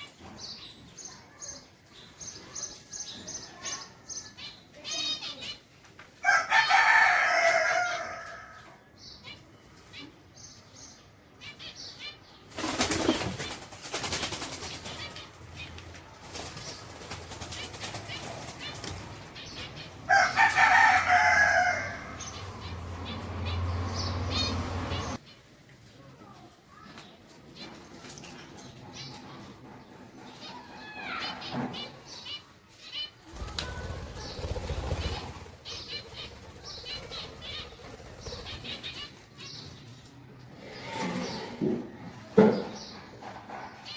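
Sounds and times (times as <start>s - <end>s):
cage birds chirping: 0.0s - 43.9s
birds flapping wings: 12.5s - 19.2s, 33.3s - 39.2s
bird chirps: 33.0s - 39.8s.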